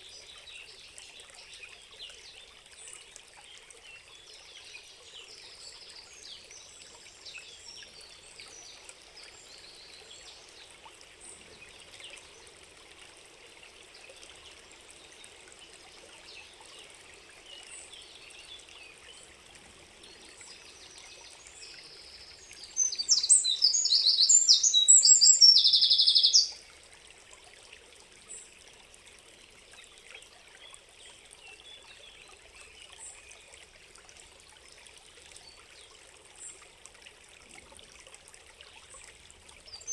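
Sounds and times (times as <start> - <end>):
trickle of running water: 0.0 - 39.9
small bird calls: 20.5 - 26.6
songbird singing rapid high song: 20.5 - 26.6.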